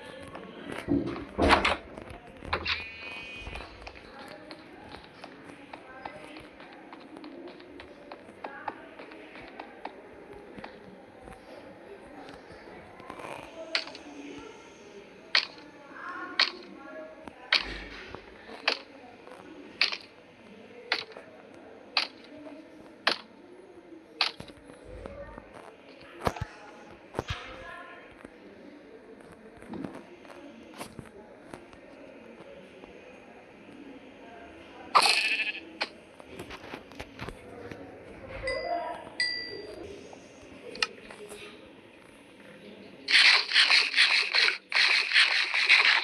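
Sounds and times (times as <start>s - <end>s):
sharp repeating clicks: 43.1s - 46.0s.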